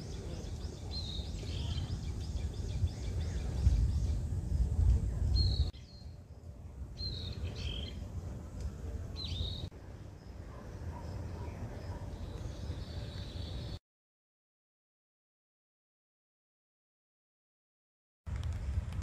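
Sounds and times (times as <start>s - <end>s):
small birds chirping: 0.0s - 13.8s
low rumble: 0.6s - 9.1s.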